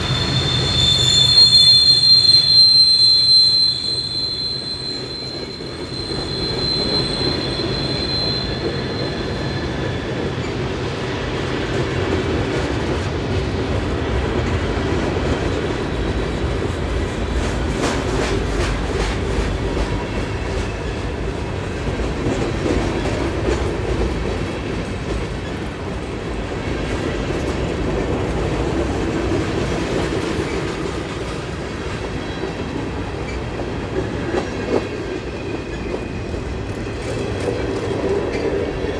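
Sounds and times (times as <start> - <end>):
high wheel squeal: 0.0 - 10.0
train wheels rumbling on rails: 0.0 - 38.9.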